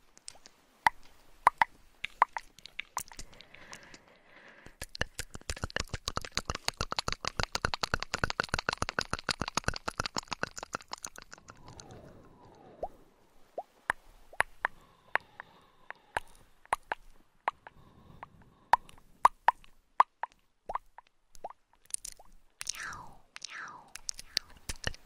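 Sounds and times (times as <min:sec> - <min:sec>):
fast crisp clicks: 0:00.0 - 0:12.9, 0:23.4 - 0:25.0.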